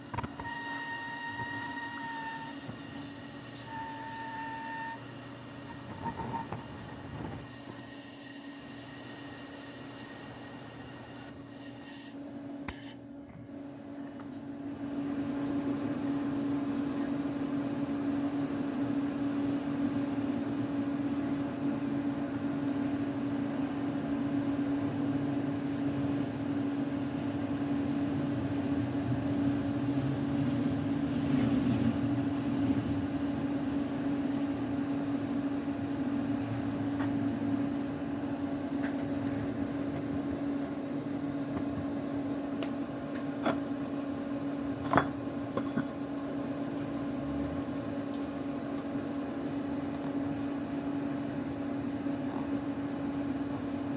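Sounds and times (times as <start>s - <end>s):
short clicks: 0.0s - 15.0s
ultrasonic drilling machine humming: 0.0s - 15.2s.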